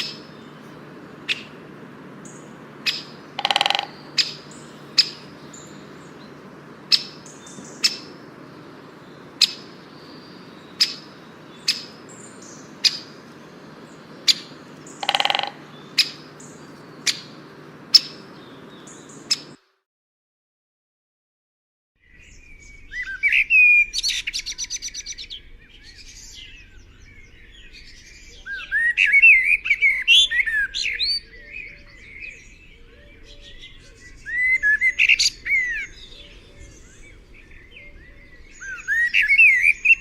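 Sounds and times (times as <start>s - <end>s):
bird chirping: 0.0s - 19.6s, 22.0s - 40.0s
bird pulsed calls: 0.0s - 19.6s, 22.0s - 40.0s.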